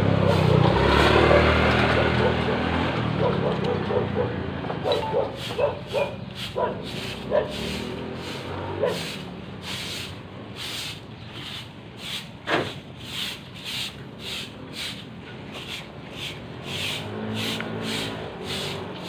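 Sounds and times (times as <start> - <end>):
broom sweeping floor: 0.2 - 1.2, 4.9 - 19.0.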